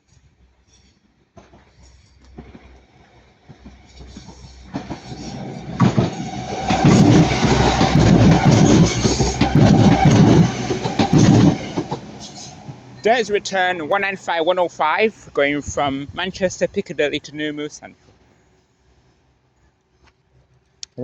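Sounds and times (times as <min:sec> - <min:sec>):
train wheels clattering: 0:00.7 - 0:15.3
train whine: 0:00.7 - 0:19.0.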